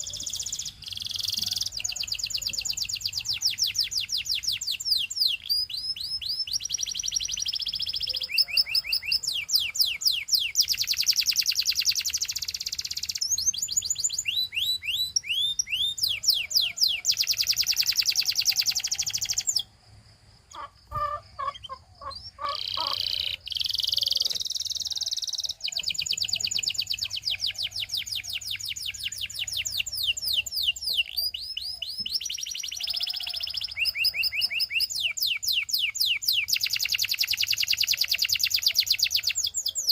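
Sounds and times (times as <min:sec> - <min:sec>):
canary singing trills: 0:00.0 - 0:19.7, 0:20.5 - 0:39.9
low bird chirps: 0:20.5 - 0:39.9.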